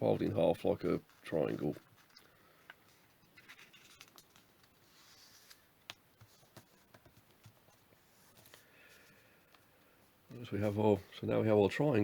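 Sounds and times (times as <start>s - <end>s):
paper rustling: 0.0s - 9.3s
paper being folded and creased: 2.8s - 8.6s.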